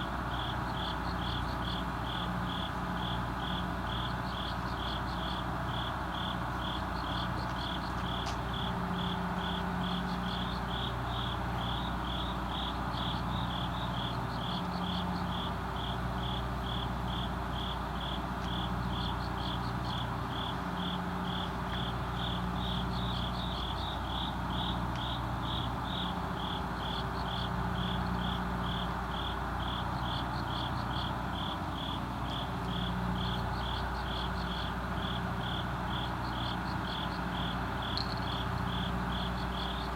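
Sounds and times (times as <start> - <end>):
crickets chirping: 0.0 - 39.9
low steady hum: 0.0 - 39.9.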